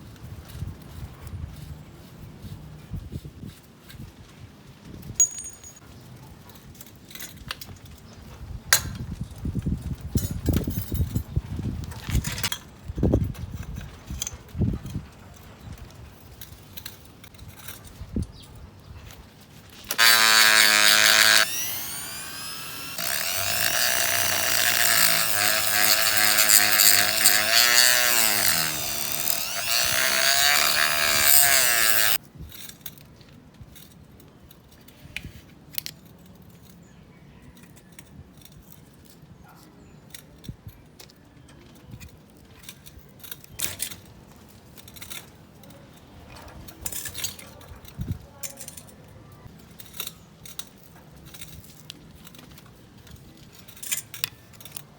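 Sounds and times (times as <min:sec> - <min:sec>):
electric power tool running: 0:19.9 - 0:32.2.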